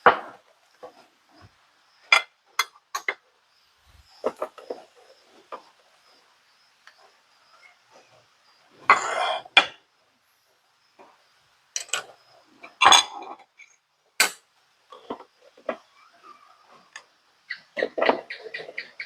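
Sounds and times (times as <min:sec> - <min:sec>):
plates and cutlery clattering: 0:12.7 - 0:13.5.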